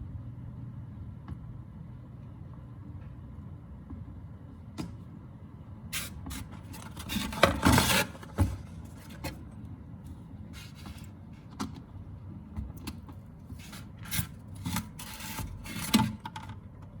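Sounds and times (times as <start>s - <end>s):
rubbing and scraping handling noise: 6.0s - 11.9s, 12.6s - 16.5s.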